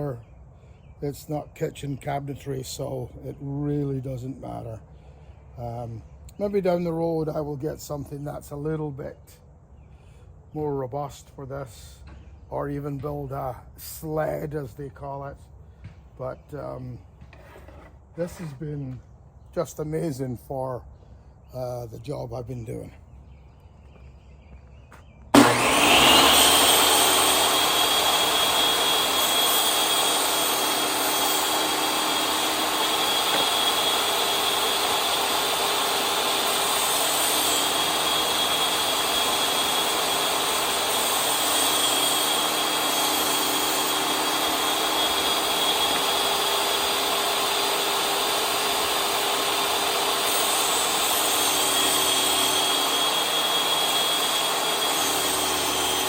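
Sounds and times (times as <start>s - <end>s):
table saw whining: 17.2s - 18.7s, 25.2s - 56.0s.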